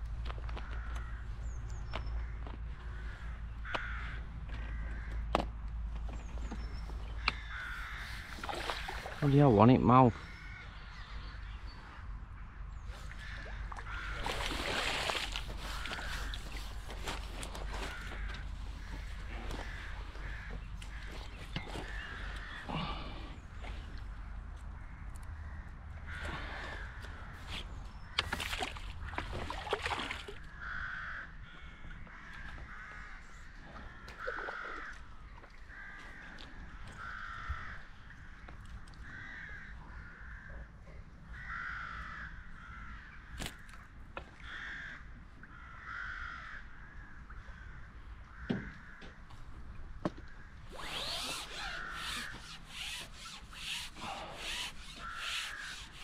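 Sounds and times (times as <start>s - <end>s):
bird calling: 6.1s - 29.4s, 50.4s - 56.0s
rapid scraping rub: 50.7s - 56.0s.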